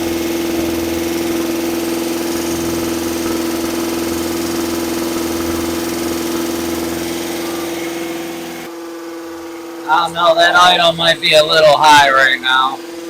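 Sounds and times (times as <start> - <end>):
engine running at fast idle: 0.0 - 13.0.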